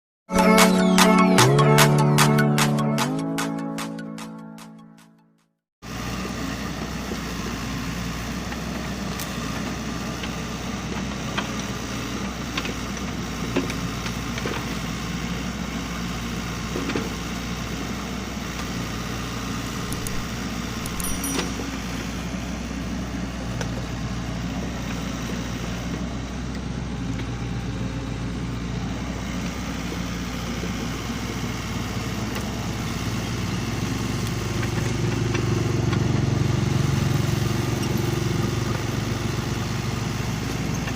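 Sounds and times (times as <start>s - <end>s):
excavator diesel engine running: 5.9s - 40.9s
sharp clicks and knocks: 19.9s - 21.6s.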